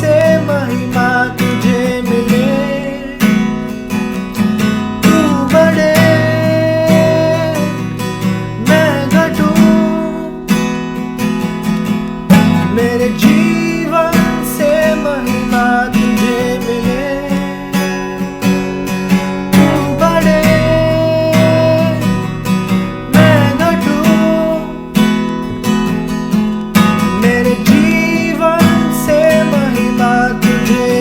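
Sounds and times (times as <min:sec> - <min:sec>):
acoustic guitar strumming: 0:00.0 - 0:31.0
wavering melody line: 0:19.2 - 0:25.6.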